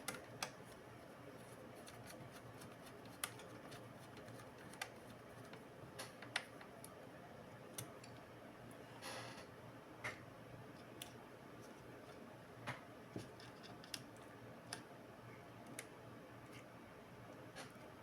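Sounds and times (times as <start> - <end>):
light clicks and taps of small parts: 1.8 - 7.0, 10.8 - 14.9.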